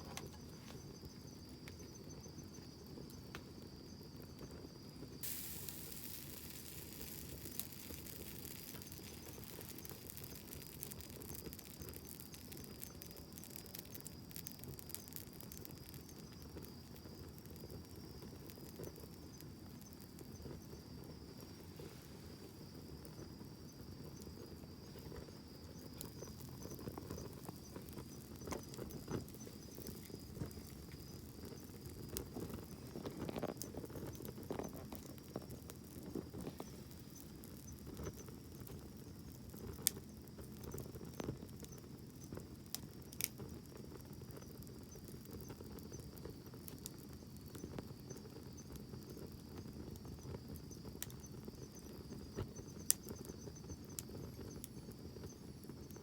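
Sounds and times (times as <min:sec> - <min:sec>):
campfire flame rustle: 0:00.0 - 0:56.0
wood crackling and popping: 0:00.0 - 0:56.0.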